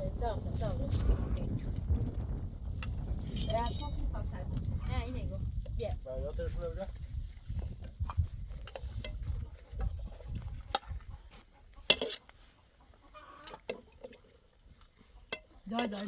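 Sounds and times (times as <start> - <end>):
chickens clucking: 9.2 - 16.0.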